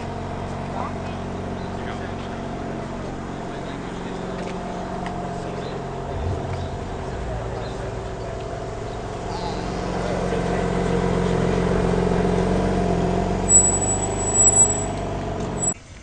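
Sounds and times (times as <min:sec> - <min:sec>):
car engine running: 0:00.0 - 0:15.8
high-pitched squeal: 0:06.1 - 0:09.0, 0:13.4 - 0:15.8.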